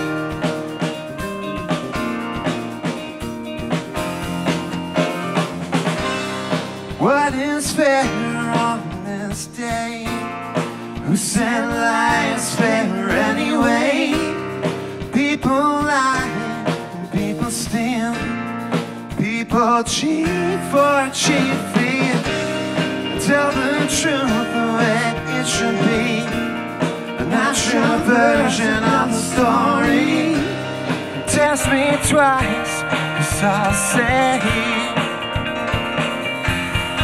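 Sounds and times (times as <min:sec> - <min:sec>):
live rock band playing: 0:00.0 - 0:37.0
man singing: 0:06.9 - 0:10.4, 0:11.0 - 0:18.5, 0:19.1 - 0:35.2.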